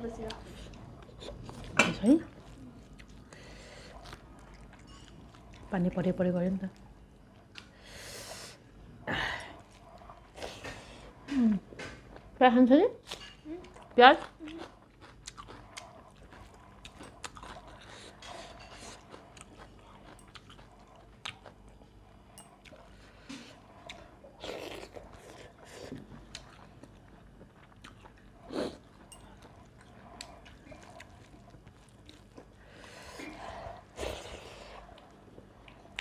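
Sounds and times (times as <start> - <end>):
crunchy chewing: 0.2 - 5.7, 13.0 - 36.0.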